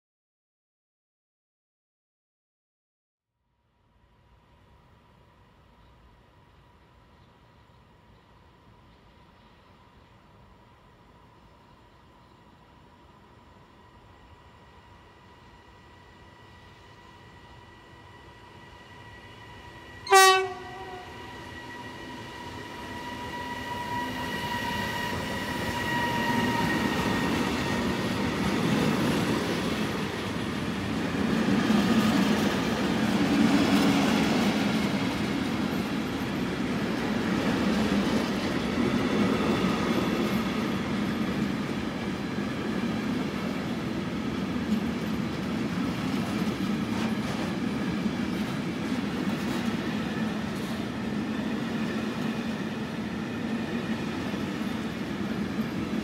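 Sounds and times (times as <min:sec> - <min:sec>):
locomotive horn blast: 0:20.0 - 0:21.4.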